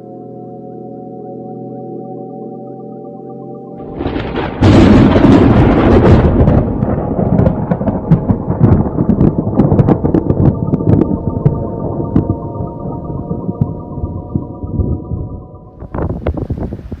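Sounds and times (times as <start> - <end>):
wind buffeting microphone: 3.9 - 17.0
crackles and knocks: 4.1 - 15.1.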